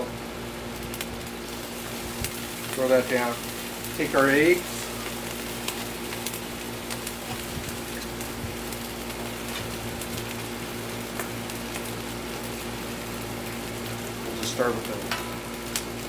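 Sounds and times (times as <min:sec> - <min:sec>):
rice sizzling in oil: 0:00.0 - 0:16.0.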